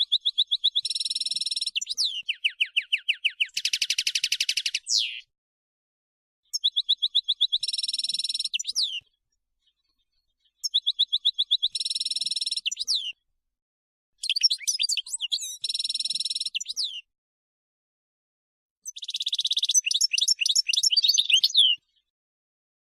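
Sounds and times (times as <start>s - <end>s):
goldfinch singing: 0.0s - 5.3s, 6.5s - 9.0s, 10.6s - 13.2s, 14.2s - 17.1s, 18.8s - 22.0s.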